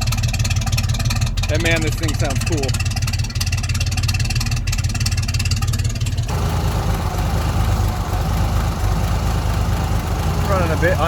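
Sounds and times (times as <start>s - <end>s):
truck engine running rough: 0.0s - 11.0s.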